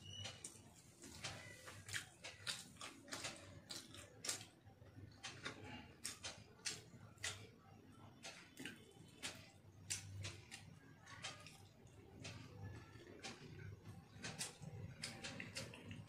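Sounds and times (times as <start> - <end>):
person chewing with lip smacks: 0.4 - 7.5.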